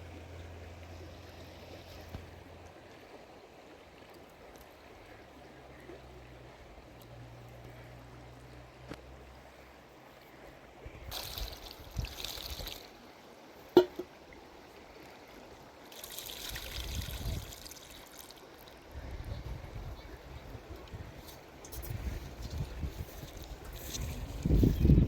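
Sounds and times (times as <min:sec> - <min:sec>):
water pouring: 0:11.1 - 0:13.0, 0:15.9 - 0:18.8
sharp knock: 0:13.8 - 0:14.1.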